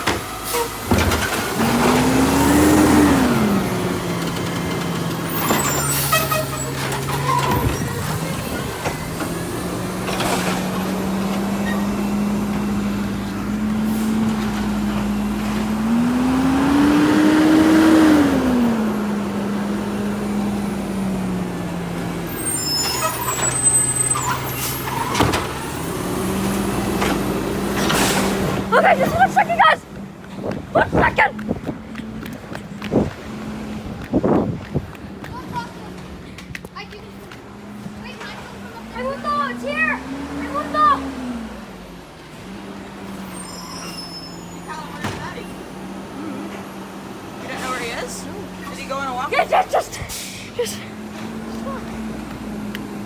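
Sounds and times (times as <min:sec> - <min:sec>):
diesel engine revving: 0:00.0 - 0:53.0
high squeal: 0:05.3 - 0:08.0, 0:22.3 - 0:25.3, 0:43.2 - 0:45.0
air brake hisses: 0:50.0 - 0:50.6.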